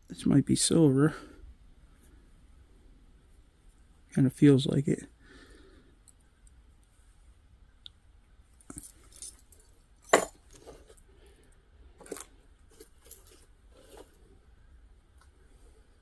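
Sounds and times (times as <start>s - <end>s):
metal jewelry clinking in a box: 8.6s - 10.9s.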